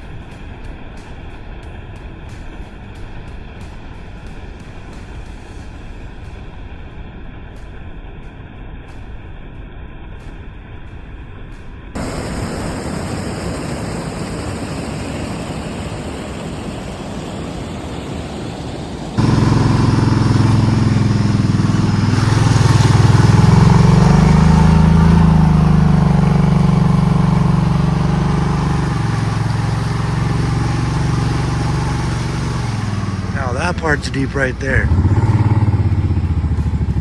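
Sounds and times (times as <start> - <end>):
steady rushing noise: 0.0 - 37.0
small vehicle engine running: 12.0 - 37.0.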